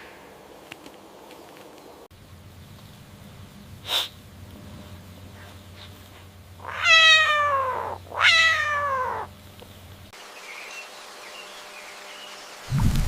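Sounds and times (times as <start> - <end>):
cat meowing: 6.6 - 9.3.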